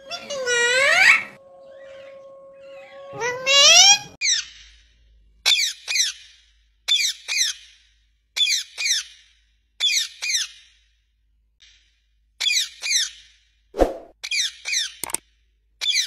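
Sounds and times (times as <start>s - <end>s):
parrot squeaky calls: 0.0s - 4.6s.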